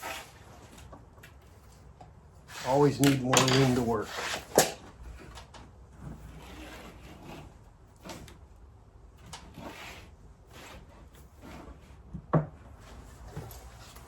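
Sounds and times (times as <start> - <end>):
pieces scraping as slid: 0.0 - 0.9, 2.4 - 8.4, 9.2 - 12.1.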